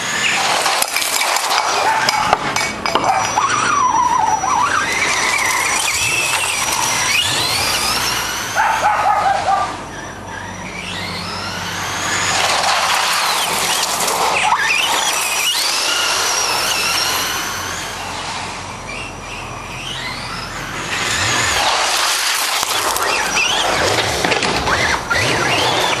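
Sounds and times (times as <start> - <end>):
toy truck motor whining: 0.0 - 26.0
tyres scrubbing: 21.0 - 26.0.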